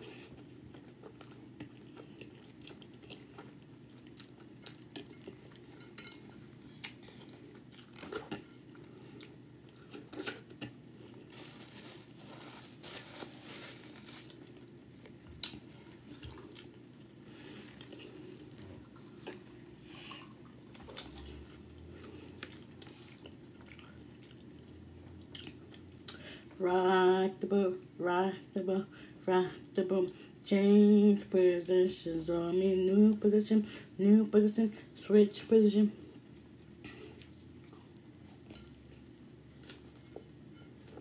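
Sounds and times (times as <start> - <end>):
person chewing with crunches: 0.0 - 26.2, 36.0 - 41.0.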